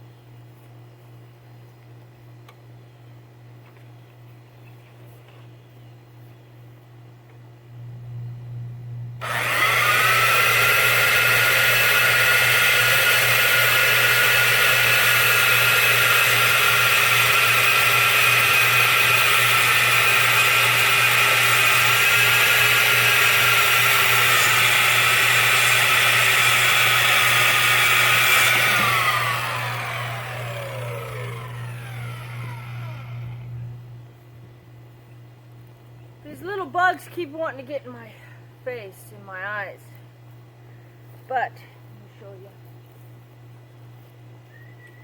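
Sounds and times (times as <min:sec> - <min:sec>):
power tool motor whine: 0:09.2 - 0:34.0.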